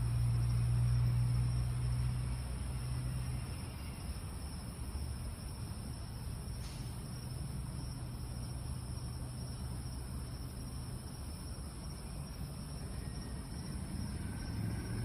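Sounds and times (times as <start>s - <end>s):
constant low hum: 0.0s - 15.0s
crickets chirping: 0.0s - 15.0s.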